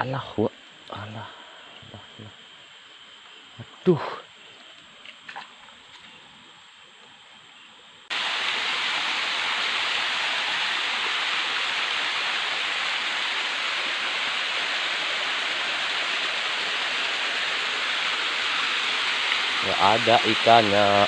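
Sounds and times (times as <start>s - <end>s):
stream water rushing: 8.1s - 21.0s.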